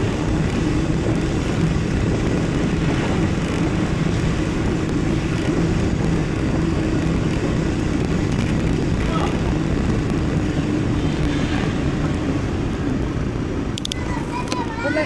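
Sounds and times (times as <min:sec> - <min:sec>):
rolling noise: 0:00.0 - 0:15.0.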